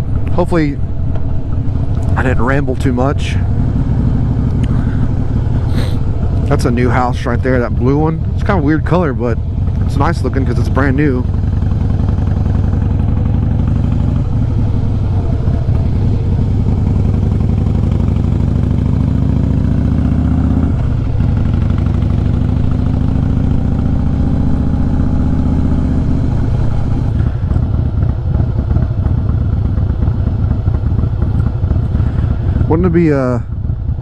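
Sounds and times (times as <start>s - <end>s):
motorcycle engine accelerating: 0.0s - 34.0s.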